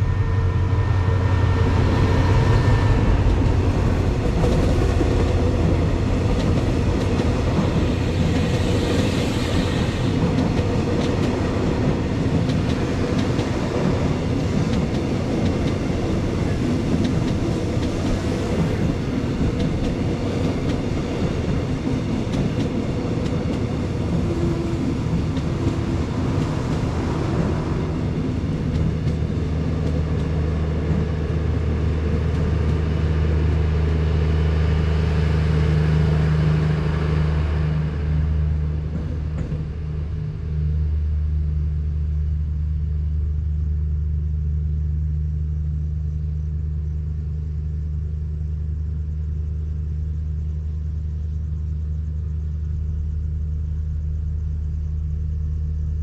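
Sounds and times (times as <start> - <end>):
diesel train engine drone: 0.0 - 56.0
wheels rattling on track: 1.4 - 33.7.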